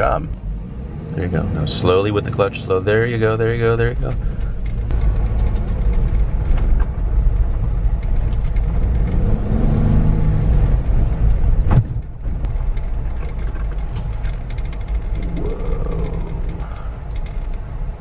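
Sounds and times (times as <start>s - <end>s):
car engine low rumble: 0.0s - 18.0s.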